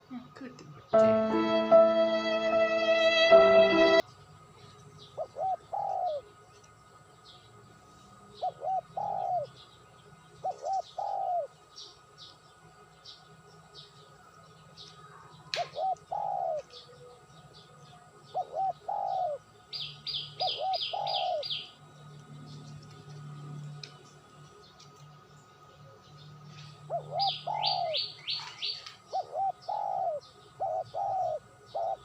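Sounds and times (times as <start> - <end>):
bird cooing call: 5.2 - 6.3, 8.4 - 9.5, 10.4 - 11.5, 15.6 - 17.2, 18.3 - 21.8, 26.8 - 32.0.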